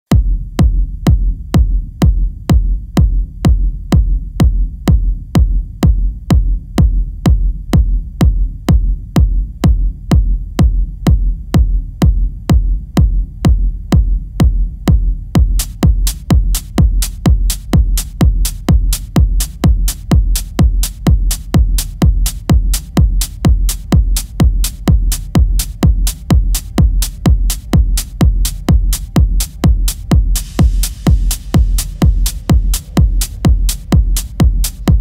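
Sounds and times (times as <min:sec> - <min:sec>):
techno kick drum: 0:00.0 - 0:35.0
low bass rumble: 0:00.1 - 0:35.0
quick percussion hits: 0:15.4 - 0:35.0.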